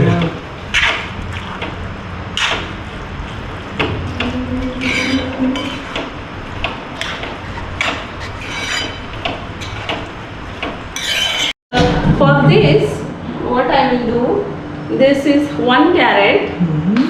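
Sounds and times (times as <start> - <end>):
steady low hum: 0.0 - 17.0
utensils and cookware clinking: 4.6 - 6.1, 6.9 - 10.1, 10.9 - 11.6.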